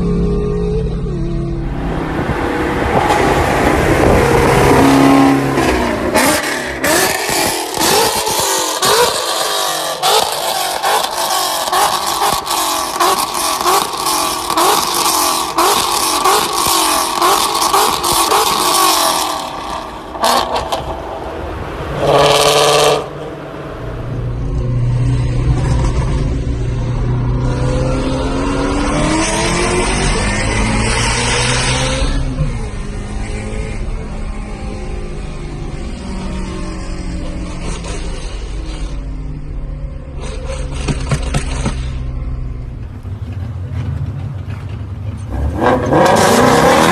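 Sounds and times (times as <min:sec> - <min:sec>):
car engine revving hard: 0:01.8 - 0:23.3, 0:27.2 - 0:35.2, 0:45.3 - 0:46.9.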